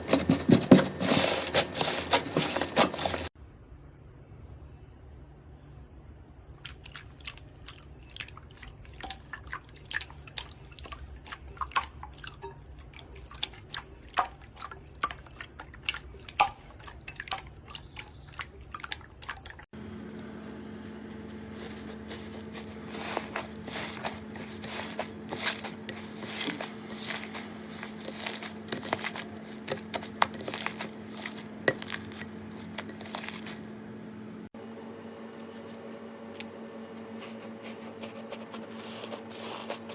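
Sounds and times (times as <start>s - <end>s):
steady low hum: 19.8s - 39.9s.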